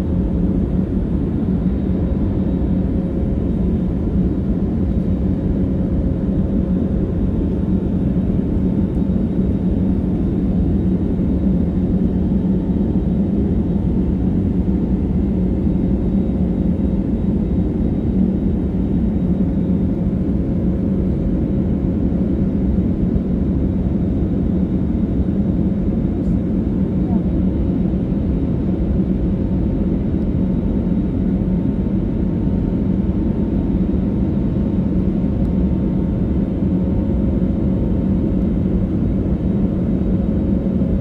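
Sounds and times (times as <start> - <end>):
jet airliner rumble: 0.0 - 41.0.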